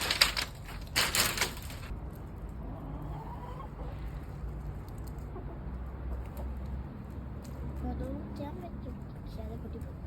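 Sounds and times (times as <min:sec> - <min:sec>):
chickens clucking: 0:02.6 - 0:04.3, 0:05.1 - 0:06.6.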